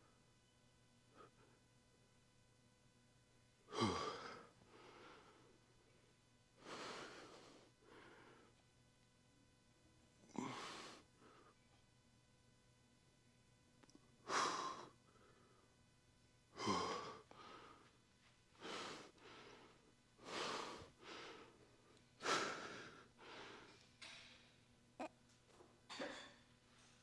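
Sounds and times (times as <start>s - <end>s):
man breathing hard: 3.7s - 5.5s, 6.6s - 8.5s, 10.4s - 11.6s, 14.2s - 15.7s, 16.6s - 18.0s, 18.6s - 23.9s.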